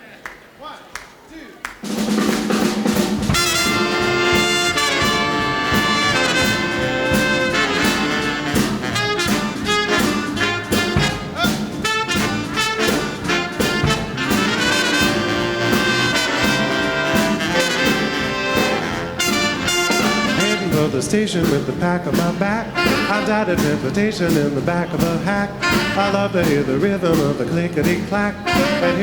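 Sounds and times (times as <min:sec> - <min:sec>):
brass section playing: 0:01.8 - 0:24.0, 0:25.0 - 0:27.3, 0:28.1 - 0:29.0
drum beat: 0:01.8 - 0:29.0
saxophones: 0:02.8 - 0:21.0, 0:28.4 - 0:29.0.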